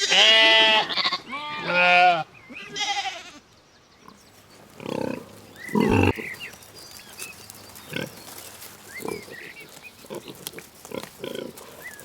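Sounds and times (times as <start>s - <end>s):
pig calling: 4.1s - 6.4s.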